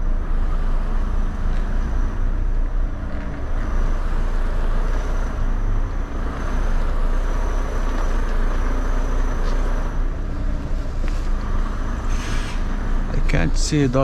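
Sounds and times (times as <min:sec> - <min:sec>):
lorry diesel engine idling: 0:00.0 - 0:14.0.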